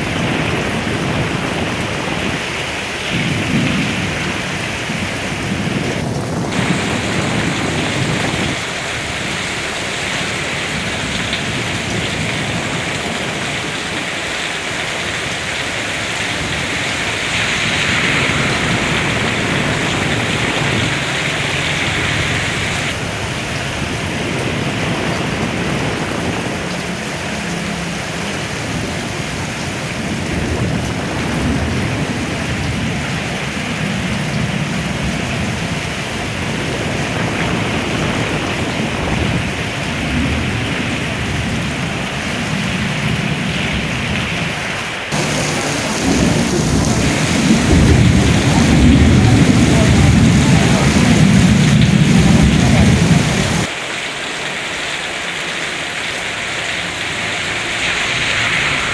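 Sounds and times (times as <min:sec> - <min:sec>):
heavy rain pouring: 0:00.0 - 0:58.9
low rumble: 0:45.2 - 0:53.7.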